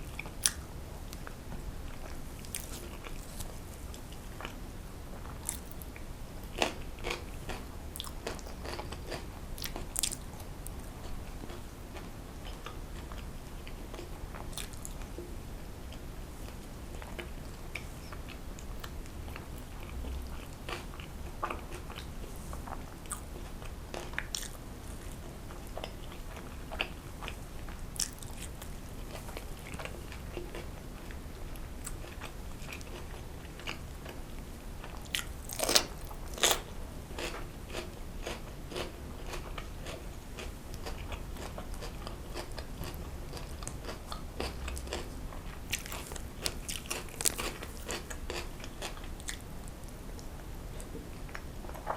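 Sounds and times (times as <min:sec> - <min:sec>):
faint low hum: 0:00.0 - 0:51.9
person biting and chewing food: 0:00.2 - 0:01.3, 0:02.4 - 0:03.6, 0:05.4 - 0:05.8, 0:06.6 - 0:10.3, 0:28.0 - 0:29.4, 0:35.1 - 0:45.1, 0:45.7 - 0:49.5.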